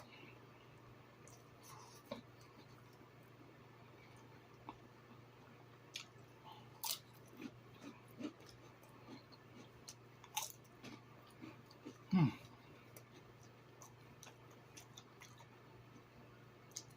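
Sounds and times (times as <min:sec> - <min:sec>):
person chewing food: 0:01.2 - 0:03.1, 0:05.9 - 0:16.9.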